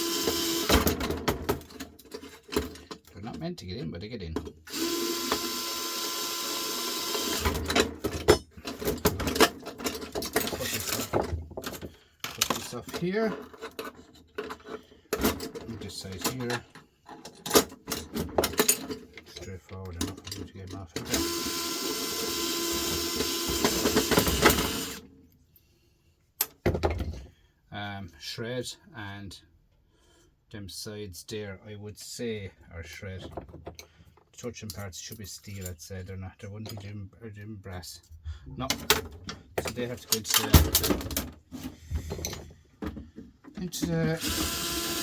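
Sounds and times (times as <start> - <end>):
power tool motor whirring: 0.0 - 0.8, 4.7 - 7.5, 21.1 - 25.0, 44.1 - 45.0
screws and parts clicking: 4.7 - 11.1, 43.9 - 45.0.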